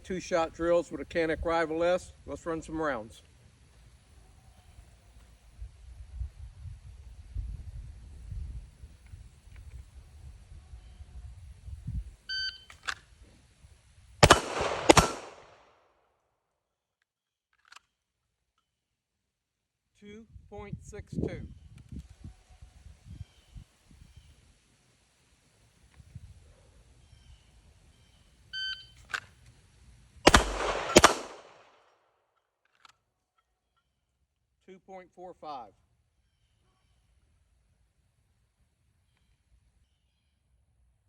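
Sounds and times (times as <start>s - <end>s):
pistol shots with echo: 14.2s - 15.6s, 30.3s - 31.7s.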